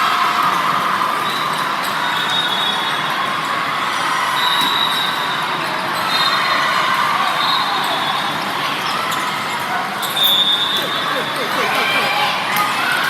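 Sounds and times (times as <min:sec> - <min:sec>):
crowd hubbub: 0:08.6 - 0:13.0.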